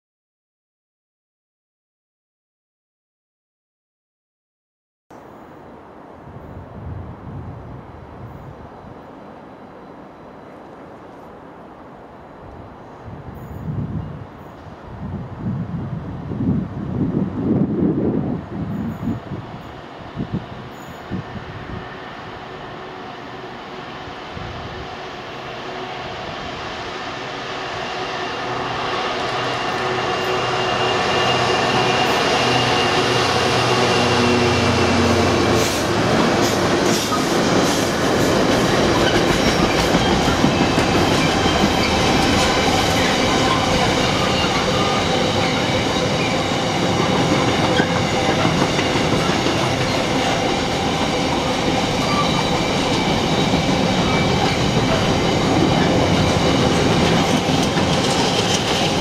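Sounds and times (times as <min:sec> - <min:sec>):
diesel locomotive engine: 0:05.2 - 0:59.0
high wheel squeal: 0:20.7 - 0:21.2, 0:26.7 - 0:35.9, 0:38.7 - 0:59.0
wheels clattering over rail joints: 0:35.6 - 0:59.0.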